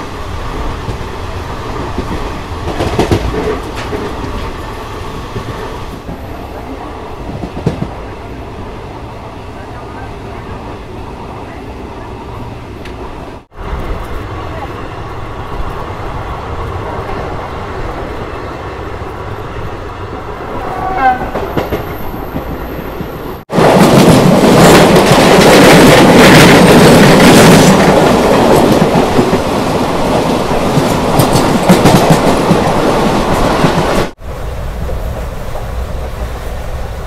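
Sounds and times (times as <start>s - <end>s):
train wheels clattering: 1.8s - 6.4s, 21.0s - 34.2s
train horn blast: 20.6s - 21.5s.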